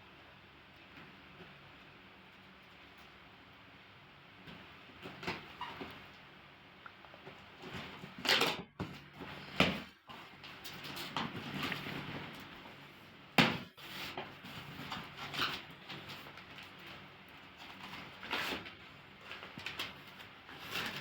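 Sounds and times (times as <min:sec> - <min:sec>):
packaging rustling and crinkling: 0:13.6 - 0:21.0.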